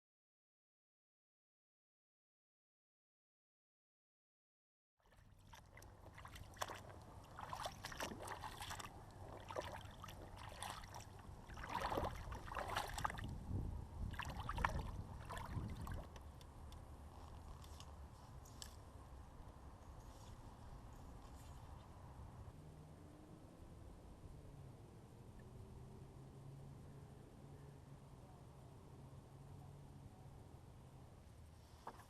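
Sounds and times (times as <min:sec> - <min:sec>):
paddle splashes: 0:05.0 - 0:13.4, 0:14.1 - 0:16.2
water sloshing: 0:05.0 - 0:13.4, 0:14.0 - 0:16.2
low steady rumble: 0:05.3 - 0:31.7.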